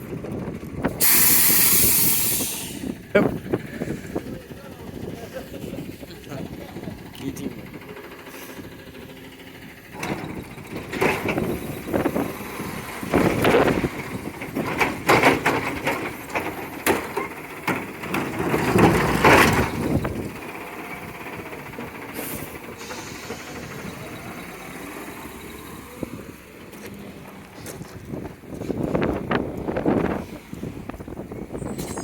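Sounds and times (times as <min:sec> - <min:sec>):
recyclables clattering: 0:09.9 - 0:24.2.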